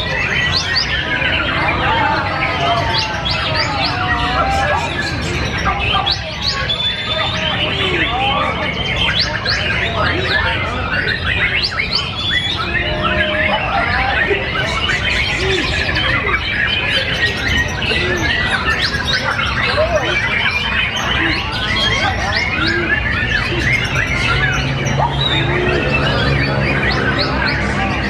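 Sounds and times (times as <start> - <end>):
low background murmur: 0.0 - 28.0
songbirds singing: 0.0 - 28.0.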